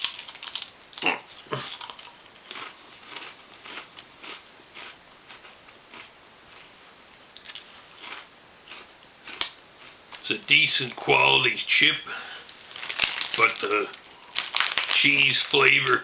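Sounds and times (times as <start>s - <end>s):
potato chip crunching: 0.0s - 6.6s, 7.4s - 10.3s, 12.4s - 16.0s.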